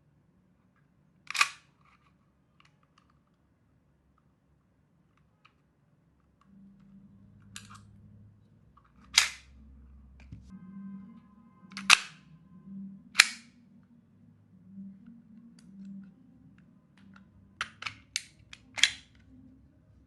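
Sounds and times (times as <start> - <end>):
metallic pistol clacks: 13.2 - 13.5.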